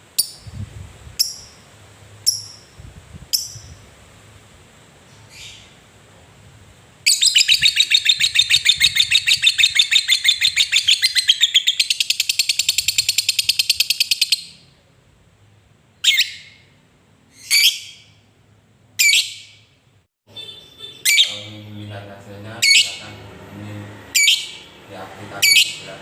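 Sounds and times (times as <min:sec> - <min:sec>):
lovebird chattering: 0:01.2 - 0:01.6, 0:02.2 - 0:03.8, 0:07.1 - 0:14.6, 0:20.8 - 0:21.6, 0:22.6 - 0:23.0, 0:24.1 - 0:24.7, 0:25.4 - 0:25.9.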